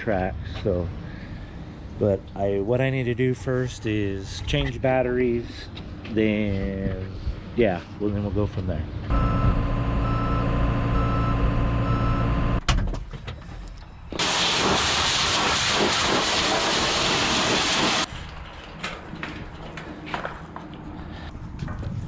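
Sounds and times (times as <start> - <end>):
diesel engine running: 9.0 - 12.6
backup alarm beeping: 9.1 - 12.6
pressure washer spraying: 14.2 - 18.1.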